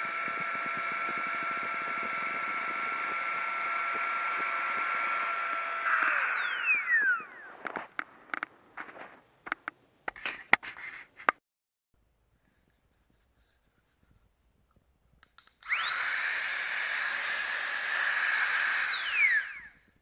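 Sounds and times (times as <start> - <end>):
electric air pump whining: 0.0 - 9.0, 15.6 - 20.0.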